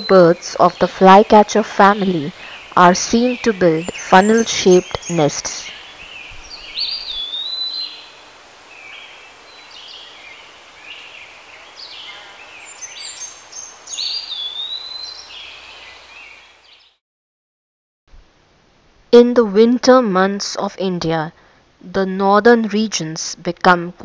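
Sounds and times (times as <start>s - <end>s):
bird chirps: 0.0s - 17.0s
bird singing whistled phrases: 3.3s - 8.1s, 11.6s - 16.0s.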